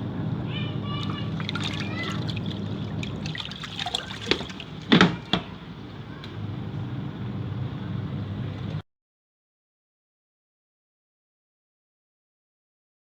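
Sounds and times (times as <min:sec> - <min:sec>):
washing machine motor hum: 0:00.0 - 0:08.8
water sloshing in a tub: 0:00.5 - 0:06.5
knocks: 0:03.8 - 0:05.6.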